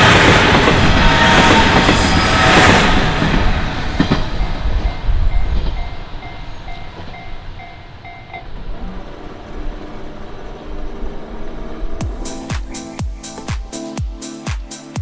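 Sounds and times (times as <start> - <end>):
crossing warning bell ringing: 0.0 - 8.8
train wheels rumbling: 0.0 - 13.9.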